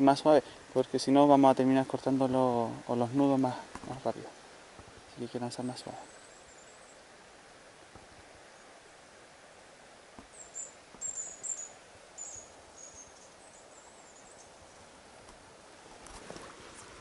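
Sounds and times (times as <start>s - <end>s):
faint outdoor hiss: 0.0s - 17.0s
bird twittering: 10.3s - 14.8s.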